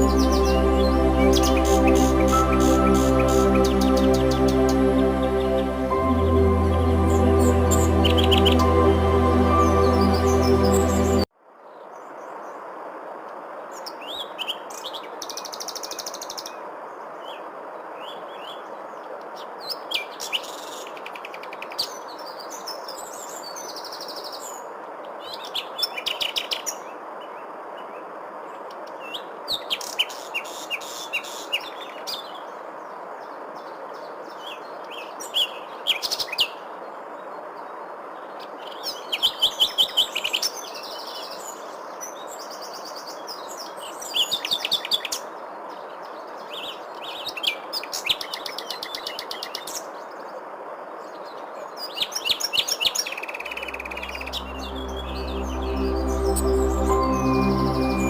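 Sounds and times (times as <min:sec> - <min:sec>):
songbirds chirping and trilling: 0:00.0 - 0:12.1.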